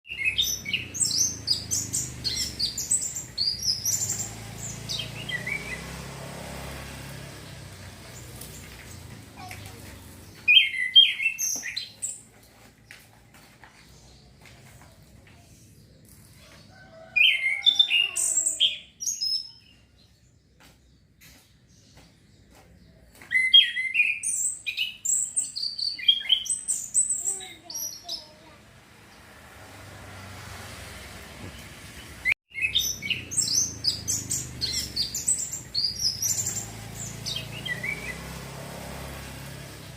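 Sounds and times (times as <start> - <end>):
thrush singing whistled notes: 0.1 - 6.3.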